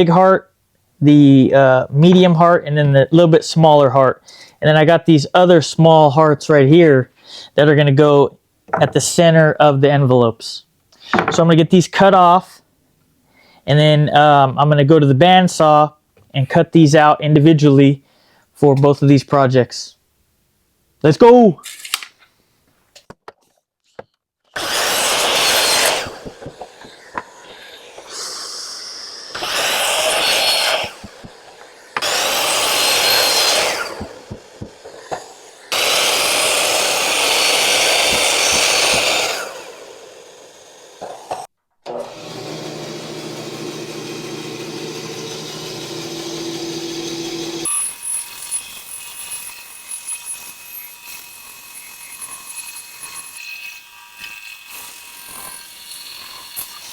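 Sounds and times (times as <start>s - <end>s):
power saw cutting wood: 24.6s - 56.9s
machine humming: 42.1s - 47.7s.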